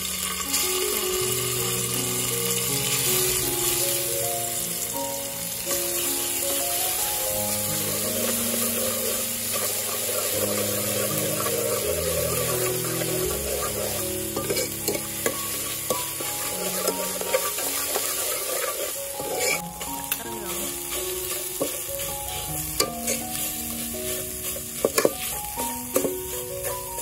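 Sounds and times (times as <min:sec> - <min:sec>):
paste sizzling in hot oil: 0:00.0 - 0:27.0
metal ladle stirring and scraping: 0:07.7 - 0:27.0.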